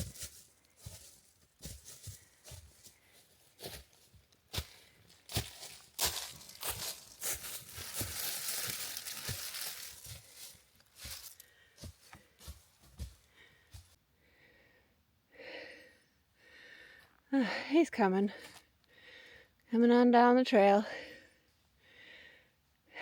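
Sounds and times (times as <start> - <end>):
footsteps crunching dry leaves: 0.0 - 13.2.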